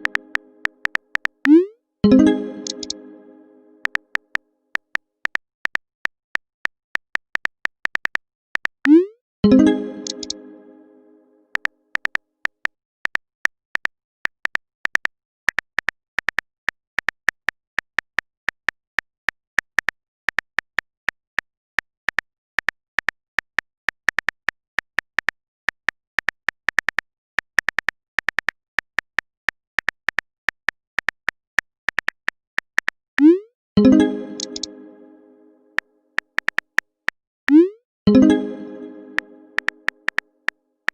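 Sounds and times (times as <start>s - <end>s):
phone keyboard typing clicks: 2.6s - 3.0s, 9.6s - 10.4s, 33.8s - 34.8s.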